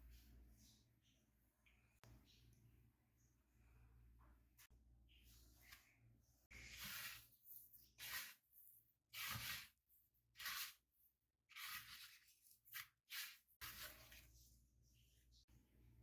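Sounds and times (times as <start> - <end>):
faint scraping and rustling: 3.6 - 10.9, 11.6 - 15.5.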